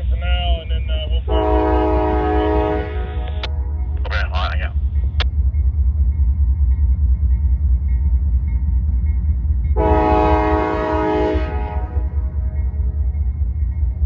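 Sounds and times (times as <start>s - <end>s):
diesel train rumble: 0.0s - 14.0s
locomotive air horn blast: 1.3s - 3.7s, 9.8s - 12.5s.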